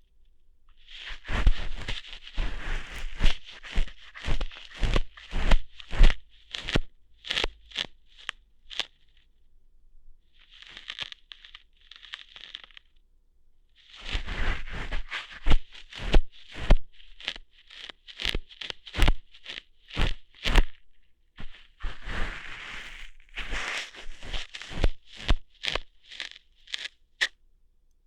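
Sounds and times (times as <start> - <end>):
scratchy rustles: 0.8 - 9.2, 10.4 - 12.8, 13.8 - 27.0
crackly snaps at microphone: 1.3 - 9.0, 10.6 - 12.9, 15.1 - 20.8, 22.8 - 27.4.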